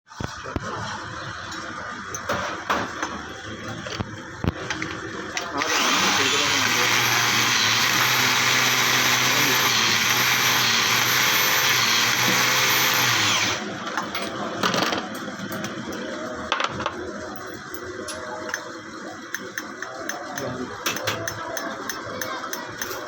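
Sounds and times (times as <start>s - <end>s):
machine whine and grinding hiss: 4.7s - 13.9s.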